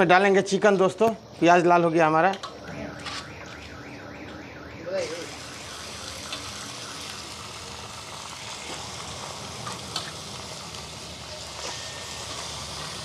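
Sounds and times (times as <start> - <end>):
chicken sizzling in hot oil: 5.2 - 13.0.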